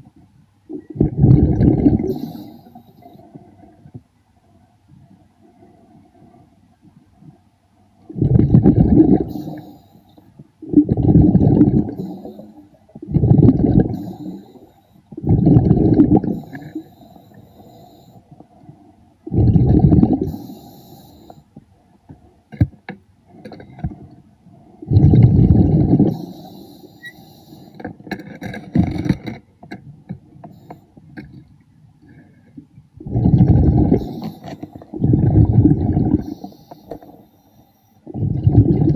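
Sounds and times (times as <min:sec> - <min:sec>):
exhaled bubbles underwater: 0:00.7 - 0:03.3, 0:08.0 - 0:09.7, 0:10.6 - 0:17.0, 0:19.2 - 0:20.6, 0:24.8 - 0:26.7, 0:33.0 - 0:37.2, 0:38.0 - 0:38.9.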